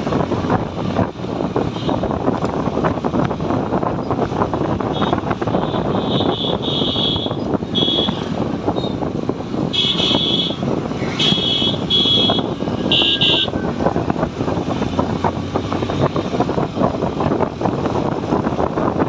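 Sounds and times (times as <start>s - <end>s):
motorcycle engine: 0.0s - 19.0s
wind noise on microphone: 0.0s - 19.0s
vehicle horn toots: 4.9s - 9.0s, 9.7s - 13.6s.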